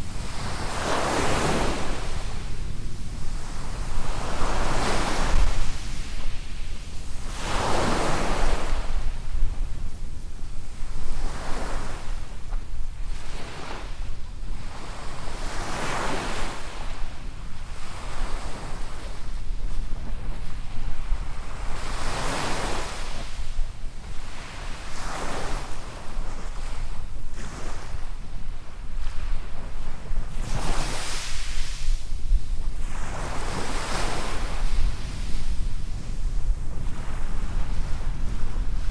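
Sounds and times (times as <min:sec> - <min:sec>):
small waves washing on sand: 0:00.0 - 0:12.4, 0:24.3 - 0:38.9
wind buffeting microphone: 0:00.0 - 0:14.8, 0:25.0 - 0:38.9.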